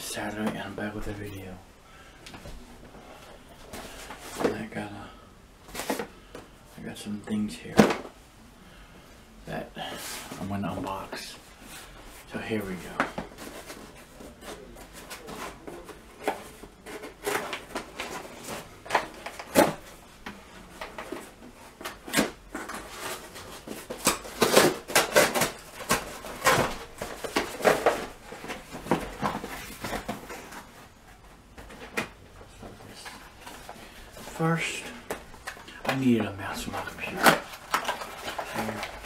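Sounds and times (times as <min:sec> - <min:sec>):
packaging rustling and scraping: 0:05.6 - 0:06.3, 0:09.8 - 0:39.0.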